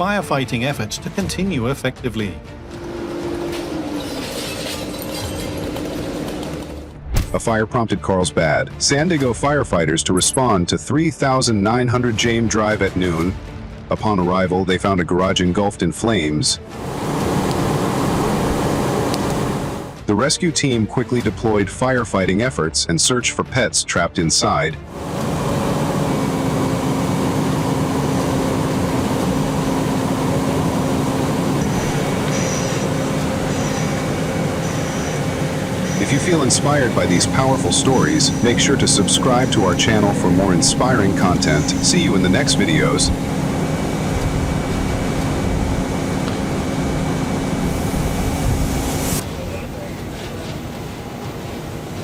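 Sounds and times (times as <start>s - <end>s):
engine droning: 2.4s - 7.0s, 16.7s - 20.0s, 24.9s - 52.0s
machine rumble: 2.4s - 7.4s, 16.7s - 20.0s, 24.9s - 52.0s
low hum: 2.5s - 7.4s, 24.9s - 52.0s.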